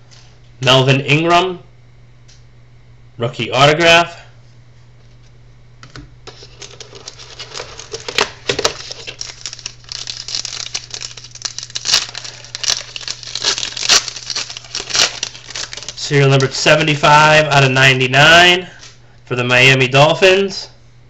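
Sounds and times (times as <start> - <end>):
plastic packaging crinkling: 6.3 - 17.0.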